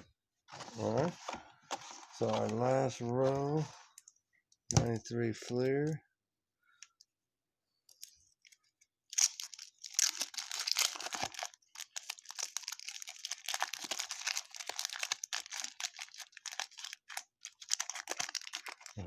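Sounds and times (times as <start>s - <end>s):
card pack wrapper crinkling: 1.7s - 4.0s, 8.0s - 19.0s.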